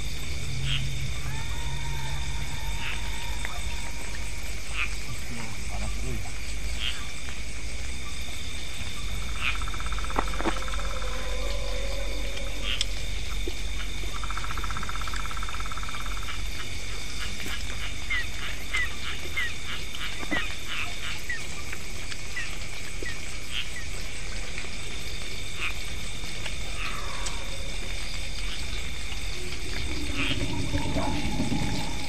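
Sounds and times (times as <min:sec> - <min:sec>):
low rumble: 0:00.0 - 0:05.7, 0:26.0 - 0:32.0
buzzing pulsed frog call: 0:00.0 - 0:05.9, 0:09.1 - 0:21.2, 0:25.5 - 0:32.0
high insect trilling: 0:00.0 - 0:21.7, 0:22.3 - 0:32.0.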